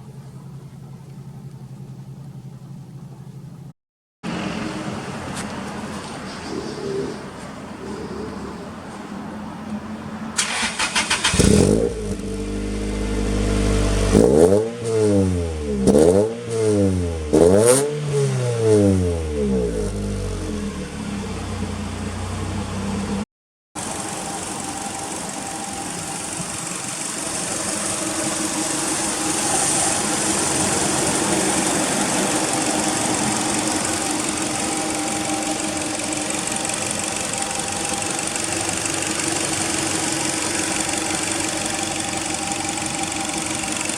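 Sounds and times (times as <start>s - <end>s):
car engine throttle blips: 0.0s - 3.7s, 9.5s - 23.2s, 23.8s - 43.9s
car engine idling: 0.0s - 7.9s, 8.5s - 14.2s, 19.0s - 23.2s, 23.8s - 43.9s.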